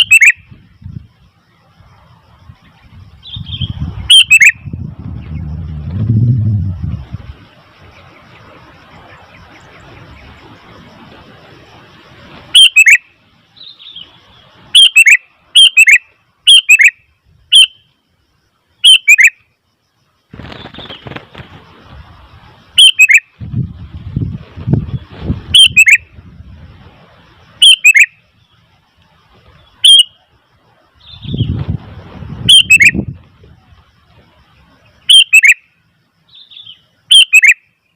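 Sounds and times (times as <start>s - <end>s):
bulbul calling: 0.0s - 0.6s, 3.2s - 7.1s, 12.5s - 17.9s, 18.8s - 19.4s, 22.7s - 23.3s, 25.0s - 26.2s, 27.6s - 28.5s, 29.6s - 30.3s, 32.4s - 33.2s, 35.0s - 35.7s, 36.3s - 37.7s
low rumbling noise: 2.3s - 11.9s.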